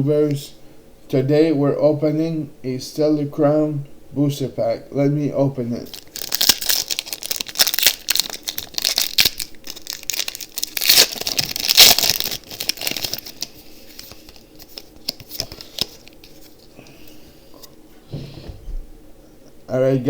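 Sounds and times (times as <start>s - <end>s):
foil pack tearing and crinkling: 5.9s - 16.7s.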